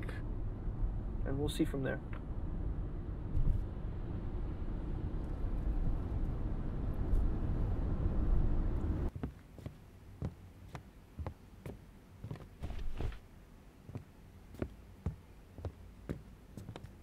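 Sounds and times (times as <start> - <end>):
light footsteps: 9.1 - 13.2, 13.8 - 17.0.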